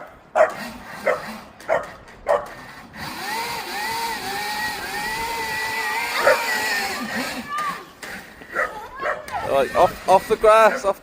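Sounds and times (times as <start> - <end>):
dog barking: 0.4 - 2.5, 6.2 - 6.5, 8.5 - 9.4
electric motor whine: 2.5 - 8.5, 9.4 - 10.7.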